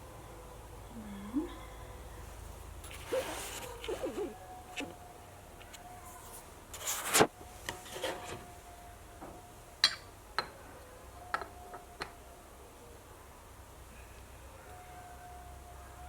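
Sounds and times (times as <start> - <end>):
rubbing scrape: 2.8 - 4.3, 6.2 - 7.3.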